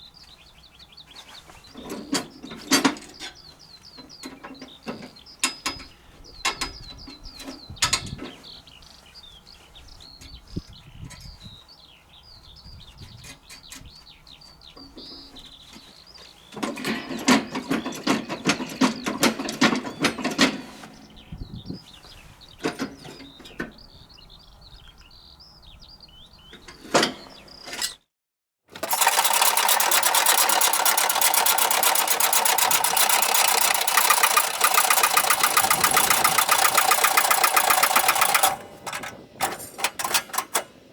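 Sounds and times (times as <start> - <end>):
birds chirping: 0.0 - 28.0, 28.8 - 40.9
small engine running: 28.7 - 40.6
mechanical clattering: 28.7 - 40.8
metallic clicks and clanks: 28.8 - 40.8.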